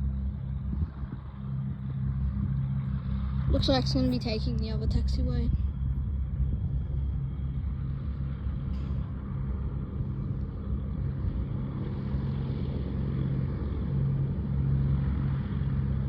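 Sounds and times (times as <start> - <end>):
aircraft engines droning: 0.0 - 16.0.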